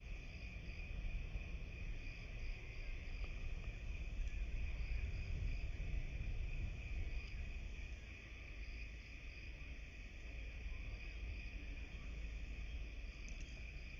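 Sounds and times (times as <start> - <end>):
low rumble: 0.0 - 8.8
insects trilling: 0.0 - 13.9
short insect chirps: 1.7 - 13.9.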